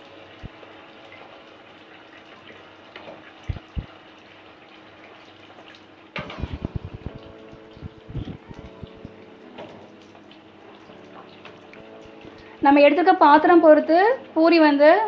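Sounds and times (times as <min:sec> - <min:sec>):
hot oil sizzling: 0:00.0 - 0:15.0
sizzling and crackling burst: 0:06.2 - 0:10.3.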